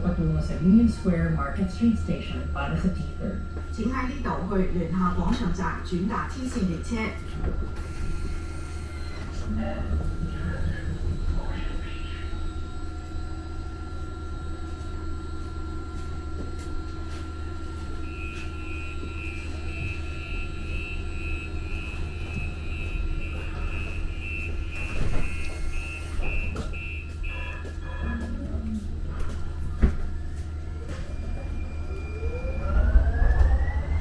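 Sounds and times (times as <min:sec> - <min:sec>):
light-rail car humming: 0:00.0 - 0:34.0
door warning beeps: 0:18.1 - 0:28.2.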